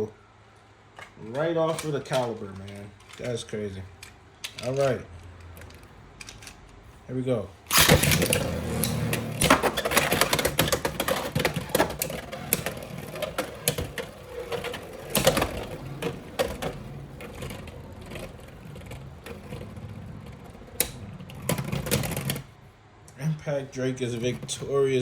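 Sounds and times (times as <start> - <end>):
spinning tops whirring: 7.7 - 22.6.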